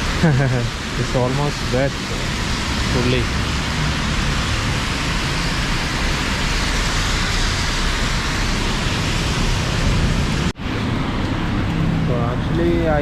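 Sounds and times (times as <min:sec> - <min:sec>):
heavy rain hissing: 0:00.0 - 0:13.0
traffic on wet street: 0:00.0 - 0:13.0.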